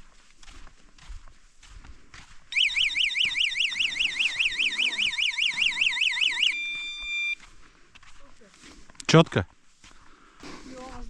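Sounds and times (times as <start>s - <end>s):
electronic siren warbling: 2.5s - 7.4s
steady high beep: 2.5s - 7.4s.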